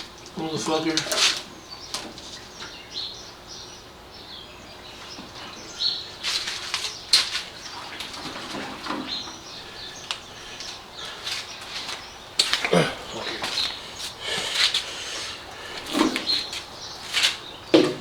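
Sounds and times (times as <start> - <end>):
scraping and rustling: 6.2 - 18.0.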